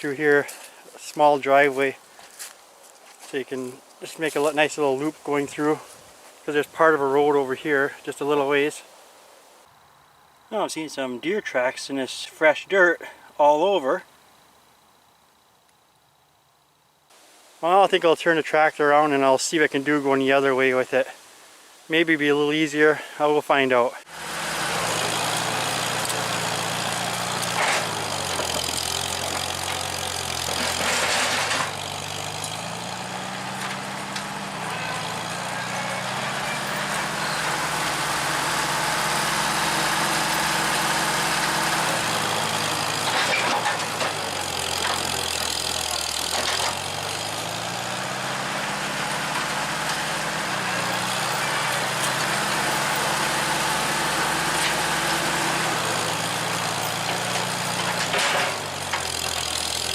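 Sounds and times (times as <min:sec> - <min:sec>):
tractor engine running: 0:24.1 - 0:59.9.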